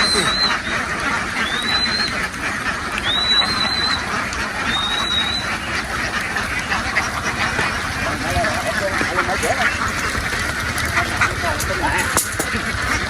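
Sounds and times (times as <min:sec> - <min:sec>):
ducks quacking: 0:00.0 - 0:13.0
high whistle-like tone: 0:01.4 - 0:02.1, 0:03.0 - 0:04.0, 0:04.7 - 0:05.5.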